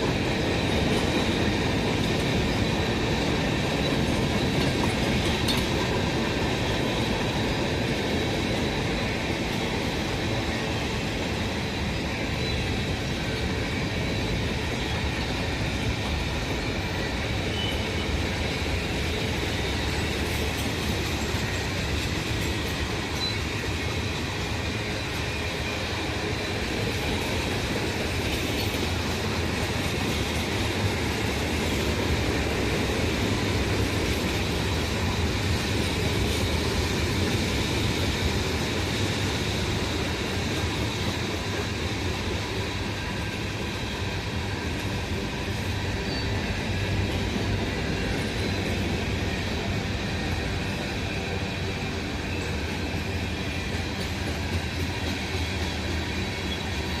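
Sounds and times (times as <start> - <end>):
freight train cars clattering: 0.0 - 57.0.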